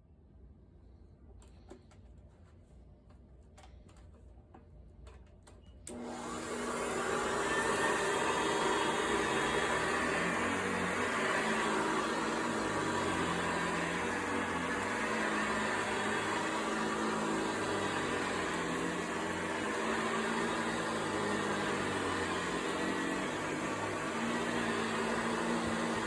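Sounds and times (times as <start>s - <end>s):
vacuum cleaner running: 5.9s - 26.0s.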